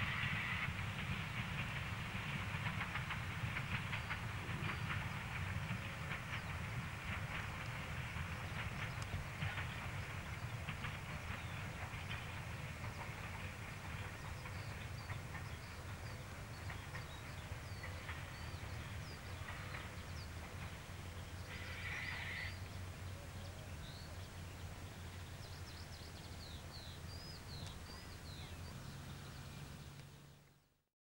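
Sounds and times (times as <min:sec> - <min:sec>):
birds chirping: 0:00.2 - 0:30.0.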